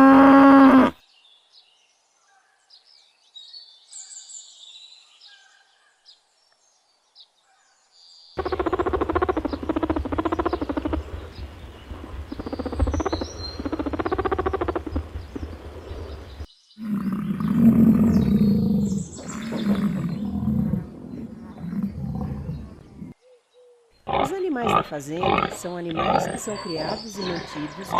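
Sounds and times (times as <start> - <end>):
deep animal call: 0.0 - 1.0, 8.4 - 23.2
bird chirps: 1.0 - 24.7, 25.4 - 27.9
loud pitched animal call: 8.4 - 11.7, 12.3 - 15.2.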